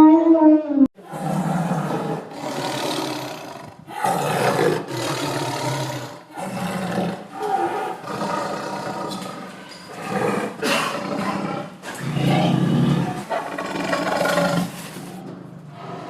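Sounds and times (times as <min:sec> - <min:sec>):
lion roaring: 0:01.0 - 0:16.0.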